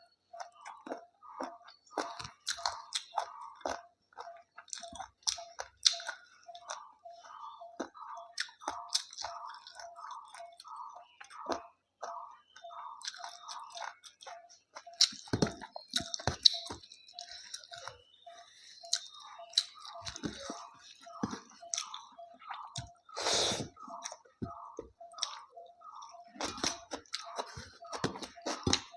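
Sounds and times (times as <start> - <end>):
person chewing food: 0.0 - 28.9.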